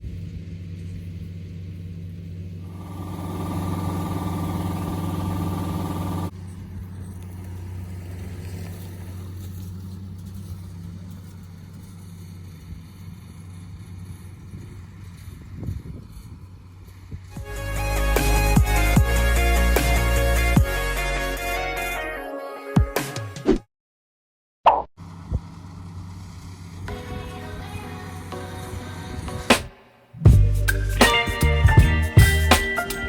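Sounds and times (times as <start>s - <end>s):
combine harvester engine hum: 0.0s - 21.4s, 25.0s - 29.7s
high whine: 2.7s - 6.3s.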